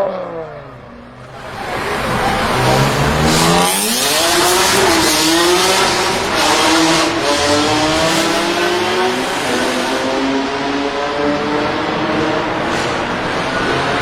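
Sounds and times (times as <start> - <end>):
car engine revving hard: 0.0 - 14.0.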